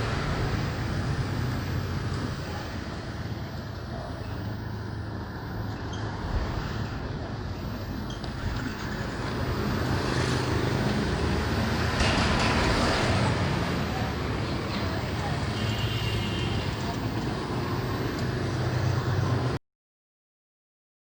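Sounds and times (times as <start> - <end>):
motorbike engine hum: 0.0 - 19.6
street traffic noise: 0.0 - 19.6.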